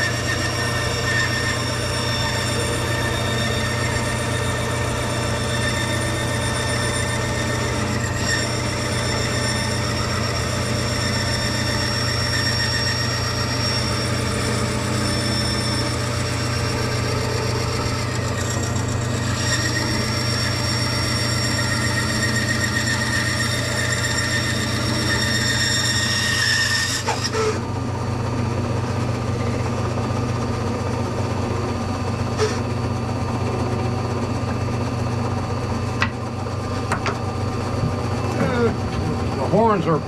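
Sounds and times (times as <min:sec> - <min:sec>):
bandsaw cutting wood: 0:00.0 - 0:27.6.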